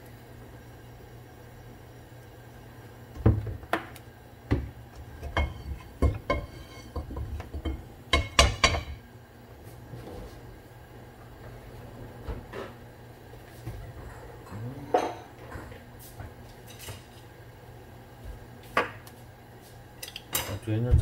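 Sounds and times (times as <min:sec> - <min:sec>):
steady low hum: 0:00.0 - 0:21.0
dishes and pots clattering: 0:05.2 - 0:09.0, 0:13.8 - 0:15.8.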